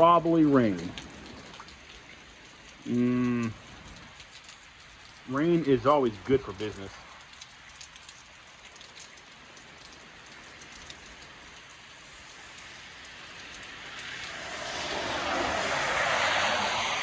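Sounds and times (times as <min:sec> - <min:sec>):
tyres hissing on wet road: 0:00.0 - 0:07.6, 0:09.6 - 0:17.0
rain drops ticking: 0:00.0 - 0:17.0
steady rain falling: 0:00.0 - 0:17.0.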